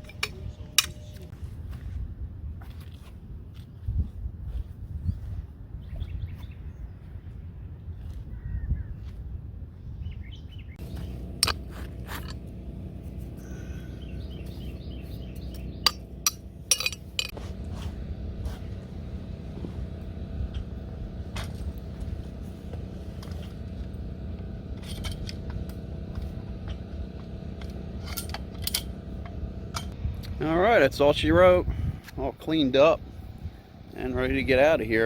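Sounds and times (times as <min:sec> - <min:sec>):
steady low rumble: 0:00.0 - 0:35.0
bird chirping: 0:13.4 - 0:16.2.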